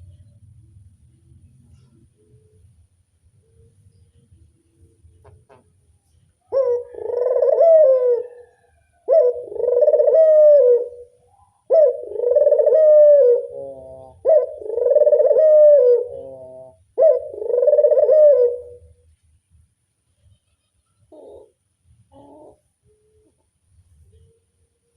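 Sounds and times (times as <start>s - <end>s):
dove cooing: 6.4s - 19.0s, 21.0s - 24.6s.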